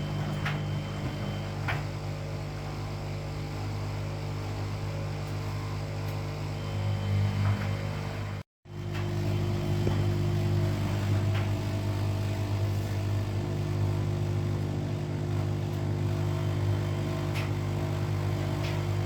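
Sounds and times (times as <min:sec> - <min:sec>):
washing machine motor humming: 0:00.0 - 0:19.0.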